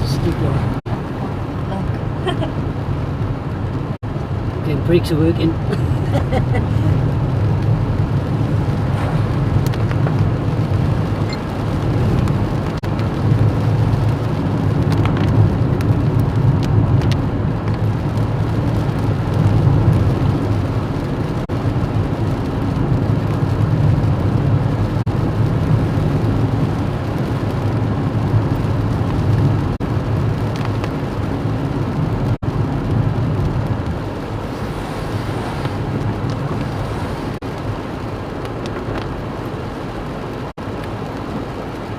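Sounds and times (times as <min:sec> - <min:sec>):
car engine from inside cabin: 0:00.0 - 0:30.5, 0:31.4 - 0:38.0.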